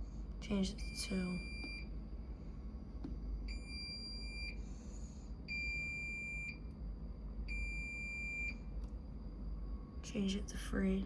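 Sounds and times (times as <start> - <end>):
high-pitched appliance beep: 0.7 - 1.9, 3.5 - 4.6, 5.5 - 6.6, 7.5 - 8.7.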